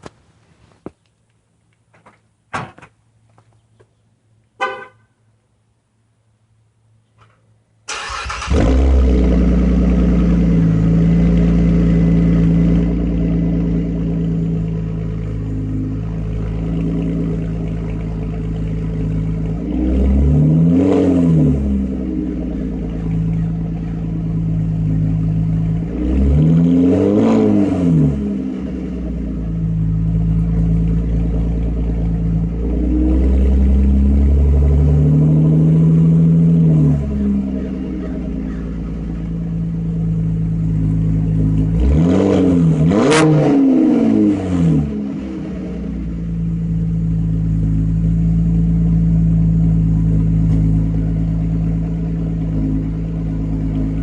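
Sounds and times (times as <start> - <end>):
car engine starting and idling: 7.5 - 54.0
engine throttle blips: 7.9 - 54.0.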